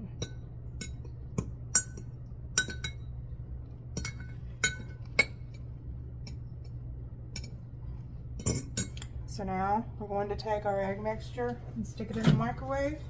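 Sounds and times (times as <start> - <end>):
glass clinking: 0.2 - 3.1, 4.0 - 5.6.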